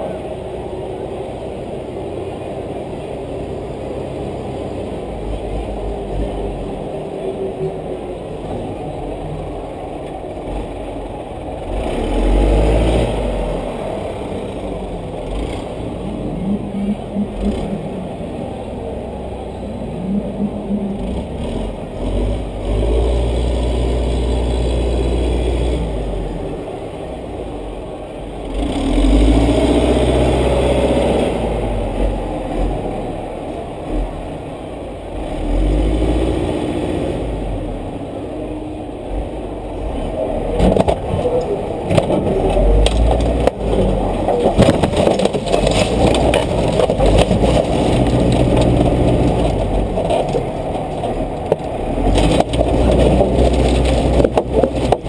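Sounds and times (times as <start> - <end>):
race car engine surging: 0.0 - 36.5, 37.2 - 55.0
knocks and rattles: 40.6 - 55.0.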